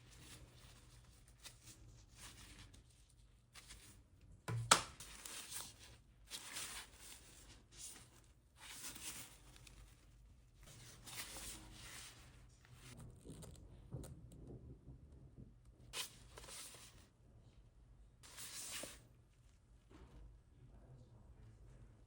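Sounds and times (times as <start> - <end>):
packaging rustling and sliding: 5.0 - 13.0.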